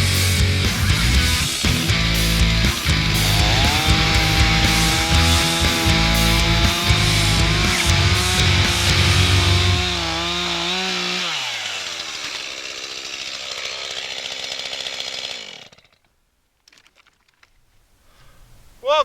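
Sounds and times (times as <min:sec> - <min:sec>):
chainsaw running: 0:00.0 - 0:16.1.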